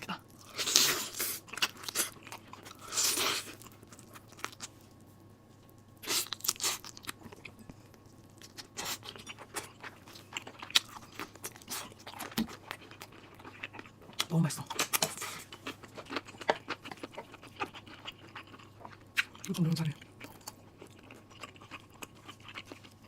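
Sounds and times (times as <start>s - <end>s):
soft chewing clicks: 6.8s - 23.0s.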